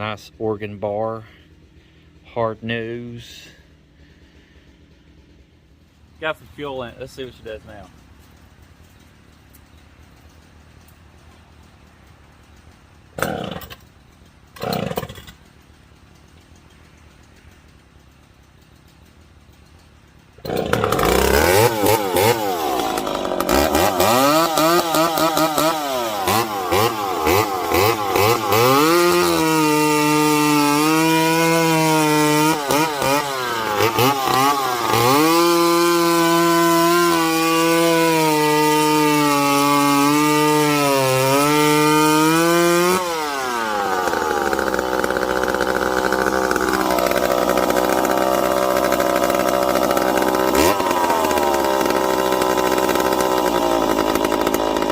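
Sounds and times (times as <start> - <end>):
chainsaw revving: 0.0 - 8.0, 13.1 - 13.9, 14.5 - 15.5, 20.4 - 54.9.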